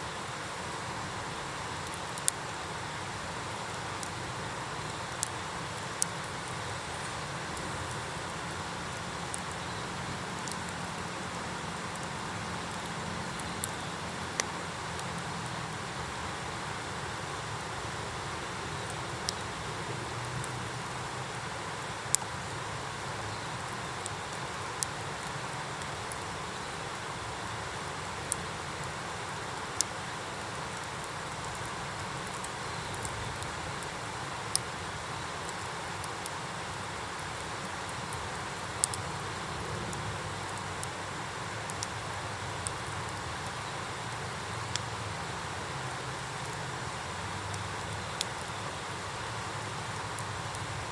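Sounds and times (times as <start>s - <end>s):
wood fire crackling: 0.0s - 50.9s.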